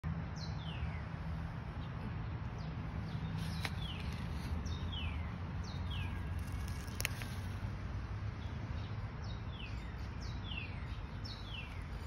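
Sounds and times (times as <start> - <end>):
bird chirping: 1.8 - 7.5, 8.4 - 12.0.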